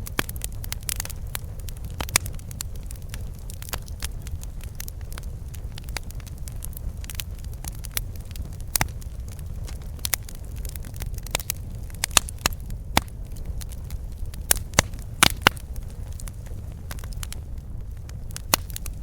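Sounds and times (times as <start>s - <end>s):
burning wood crackling and popping: 0.0s - 19.0s
low rumble of flames: 0.0s - 19.0s.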